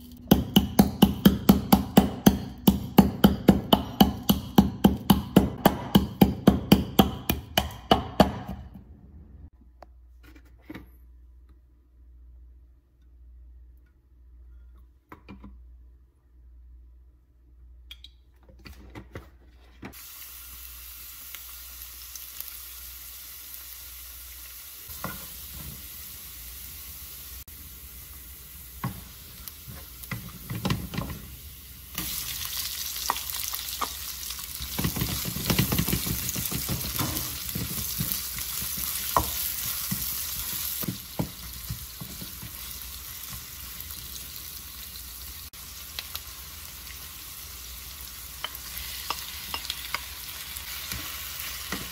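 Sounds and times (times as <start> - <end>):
garlic sizzling in oil: 20.0 - 51.9.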